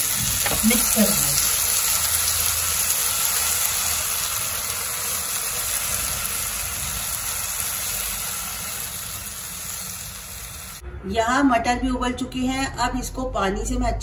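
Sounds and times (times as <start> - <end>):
vegetables sizzling in a frying pan: 0.0 - 10.8.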